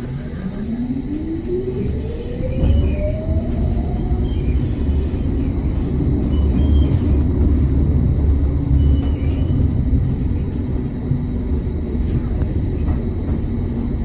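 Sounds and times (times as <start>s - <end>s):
tram rumbling on rails: 0.0s - 14.0s.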